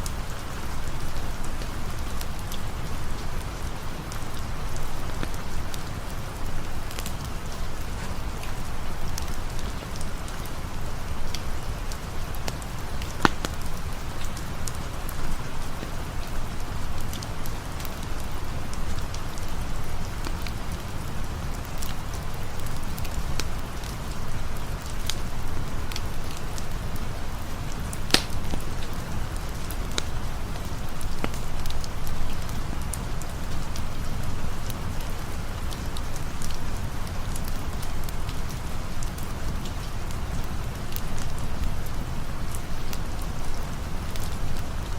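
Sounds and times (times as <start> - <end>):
campfire crackling and popping: 0.0 - 44.9
steady rain: 0.0 - 44.9.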